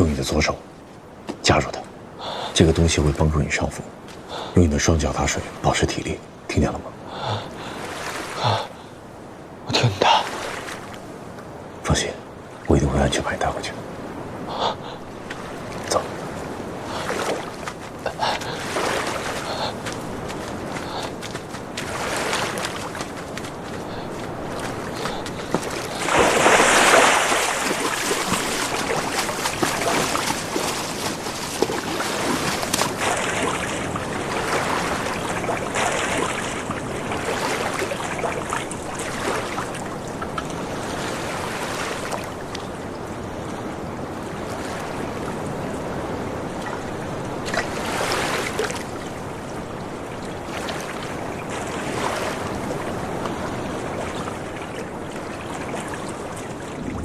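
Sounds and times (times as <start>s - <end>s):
water splashing from swimmers: 16.8s - 42.6s.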